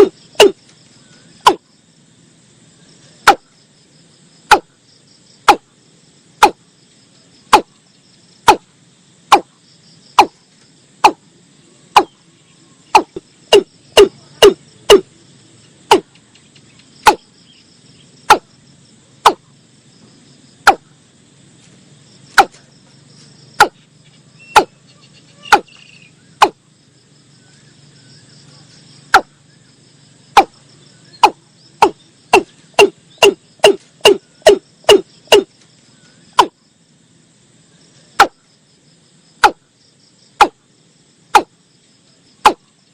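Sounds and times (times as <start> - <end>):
bird calling sharp notes: 0.0 - 0.6, 23.6 - 26.6, 31.2 - 35.5
insects trilling: 0.0 - 42.9.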